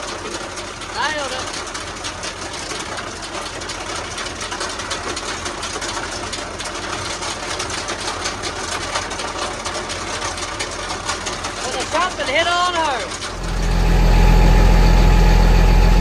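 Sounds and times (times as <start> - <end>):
tractor engine clattering: 13.3 - 16.0.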